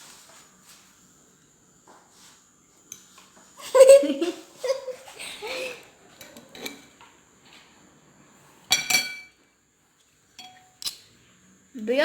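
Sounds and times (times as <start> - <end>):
cutlery clinking against plate: 6.2 - 7.0, 8.7 - 9.4, 10.4 - 11.0.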